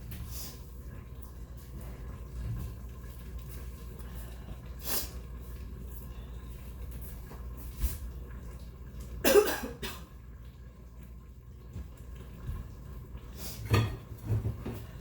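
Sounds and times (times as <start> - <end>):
woman coughing: 9.2 - 10.1.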